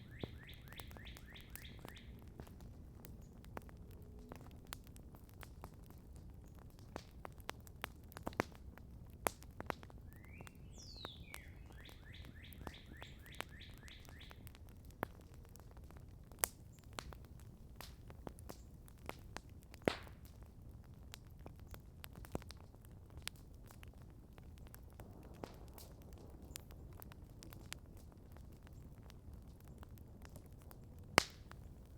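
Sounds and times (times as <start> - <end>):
bird singing: 0.0 - 2.2, 10.1 - 14.4
campfire crackling: 0.0 - 31.9.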